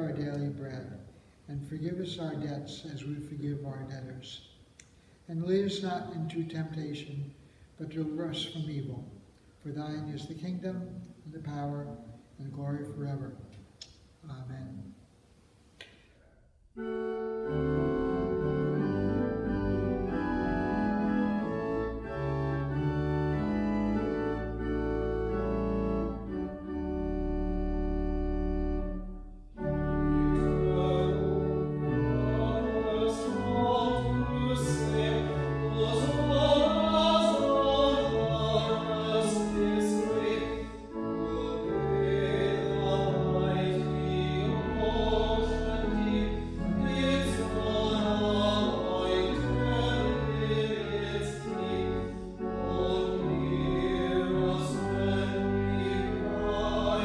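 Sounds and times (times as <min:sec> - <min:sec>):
organ playing sustained chords: 0:00.0 - 0:04.4, 0:16.7 - 0:57.0
voices singing with vibrato: 0:30.6 - 0:57.0.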